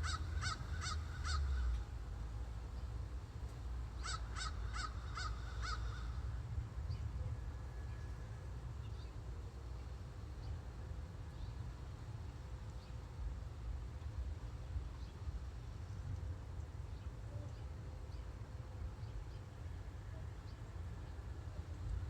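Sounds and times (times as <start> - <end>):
crow cawing: 0.0 - 1.8, 4.0 - 6.3
low outdoor rumble: 0.0 - 22.0.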